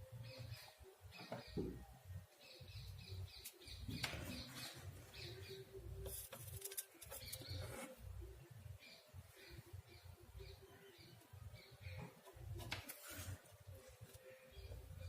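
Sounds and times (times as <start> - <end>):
clicks and rustles of wires: 6.0 - 7.6.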